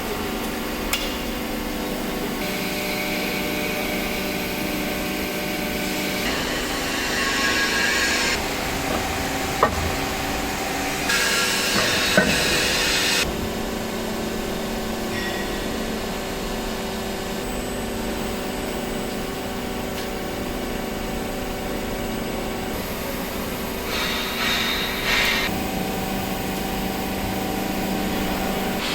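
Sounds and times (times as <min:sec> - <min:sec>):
hydraulic power unit humming: 0:00.0 - 0:28.9
sharp metallic knocks: 0:08.4 - 0:13.4.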